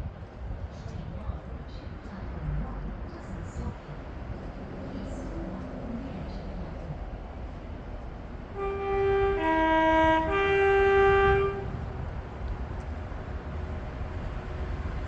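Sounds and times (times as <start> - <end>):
train rumbling past: 0.0 - 15.0
two-tone train horn: 8.5 - 11.9.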